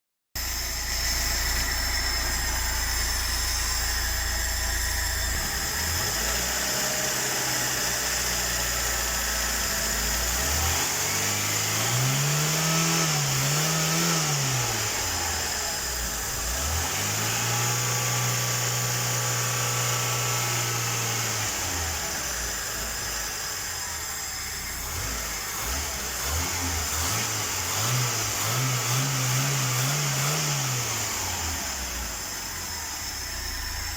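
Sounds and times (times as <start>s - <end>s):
car engine idling and revving: 0.4s - 33.9s.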